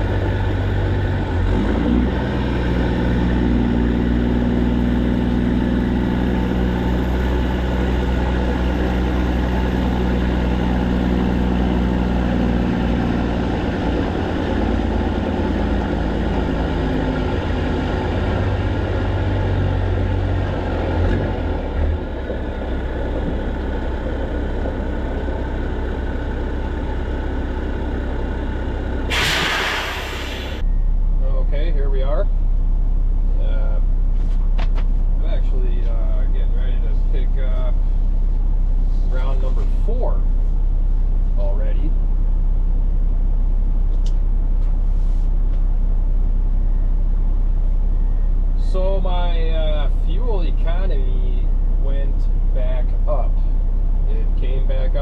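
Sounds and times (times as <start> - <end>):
truck diesel engine running: 0.0 - 31.2
loud hiss of air: 29.1 - 30.6.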